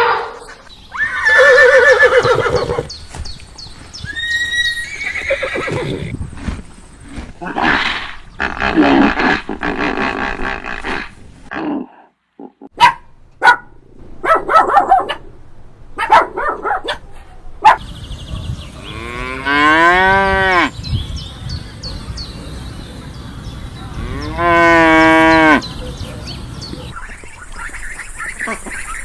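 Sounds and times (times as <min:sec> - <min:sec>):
horse whinnying: 0:01.0 - 0:02.9, 0:04.1 - 0:06.1
cow mooing: 0:23.9 - 0:25.6.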